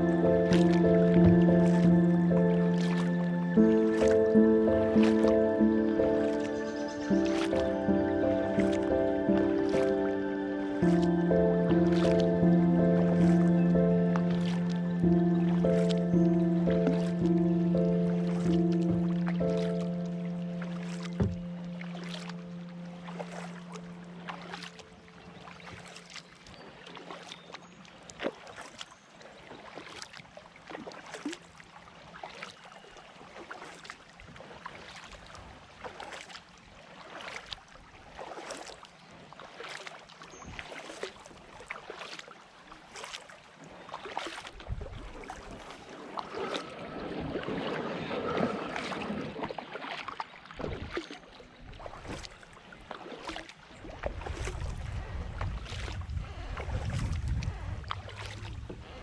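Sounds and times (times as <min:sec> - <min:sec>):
water running off paddle: 0:00.0 - 0:28.8, 0:29.4 - 0:59.0
paddle splashing in water: 0:00.0 - 0:59.0
wind rumbling on microphone: 0:44.5 - 0:49.6, 0:53.9 - 0:59.0.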